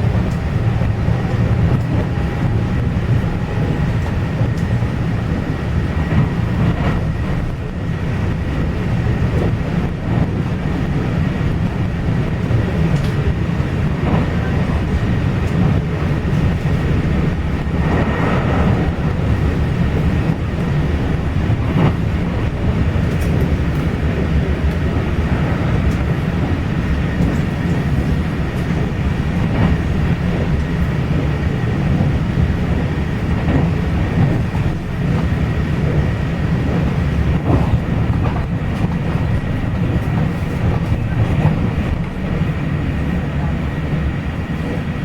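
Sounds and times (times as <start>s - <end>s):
train running on rails: 0.0s - 45.0s
faint clicks: 12.9s - 13.2s.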